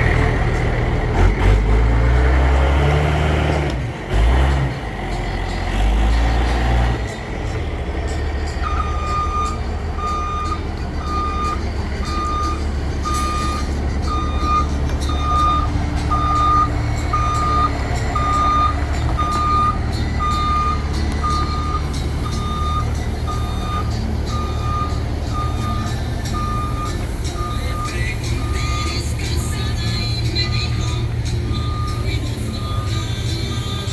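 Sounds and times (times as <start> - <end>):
diesel truck engine rumbling: 0.0 - 33.9
reversing alarm beeping: 8.5 - 33.9.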